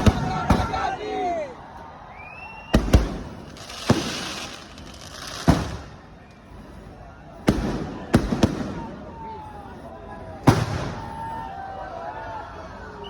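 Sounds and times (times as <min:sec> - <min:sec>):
fireworks bangs: 0:00.0 - 0:01.0, 0:02.7 - 0:06.2, 0:07.3 - 0:09.3, 0:10.4 - 0:11.4.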